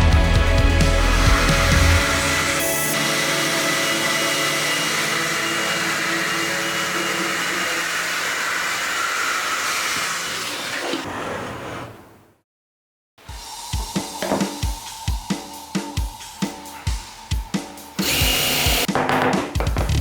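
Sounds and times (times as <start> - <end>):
electric power tool whirring: 0.7 - 10.8, 18.0 - 18.9.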